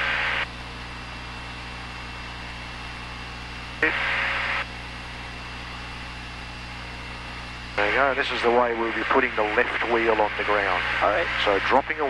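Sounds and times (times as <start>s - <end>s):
radio hiss: 0.0s - 0.5s, 3.8s - 4.7s, 7.8s - 12.0s.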